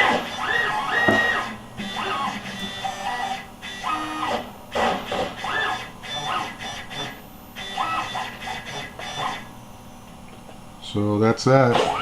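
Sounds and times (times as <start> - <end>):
stepper motors whining: 0.0 - 9.5.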